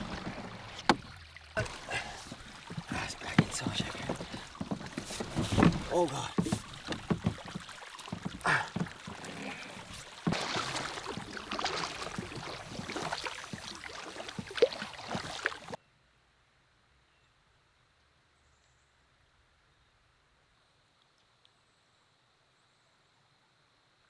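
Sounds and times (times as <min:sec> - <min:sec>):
paddle strokes splashing water: 0:00.0 - 0:15.8
heavy rain: 0:01.6 - 0:07.3, 0:08.2 - 0:13.7.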